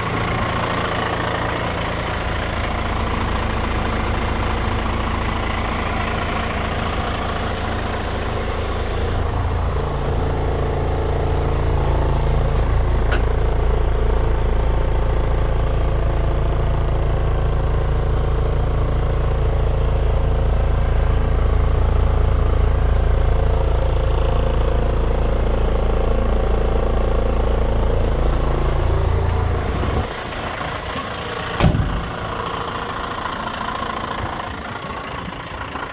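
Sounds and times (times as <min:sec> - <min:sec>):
truck diesel engine running: 0:00.0 - 0:35.9
sharp knock: 0:31.6 - 0:32.2.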